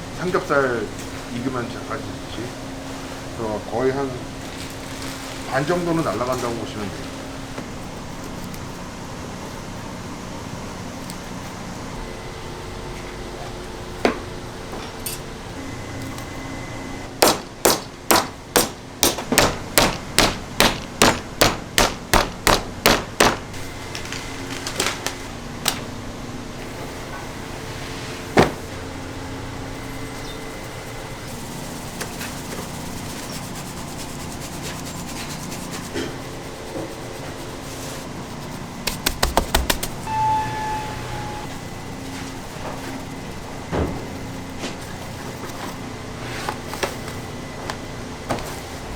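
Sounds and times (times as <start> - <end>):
meat struck on cutting board: 38.9 - 39.9.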